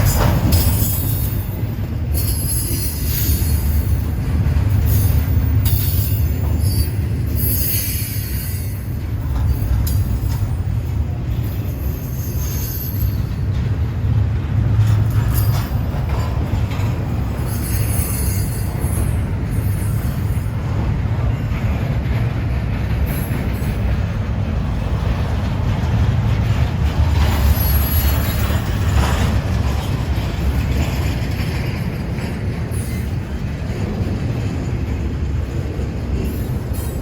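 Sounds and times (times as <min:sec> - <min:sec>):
freight train rolling on rails: 0:00.0 - 0:37.0.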